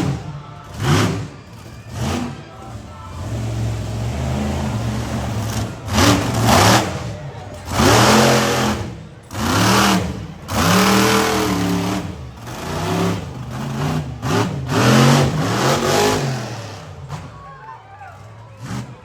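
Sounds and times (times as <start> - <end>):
monster truck engine revving: 0.0 - 19.0.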